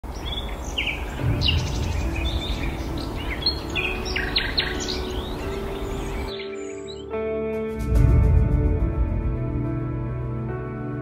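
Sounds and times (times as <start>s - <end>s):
birds chirping: 0.0s - 7.2s.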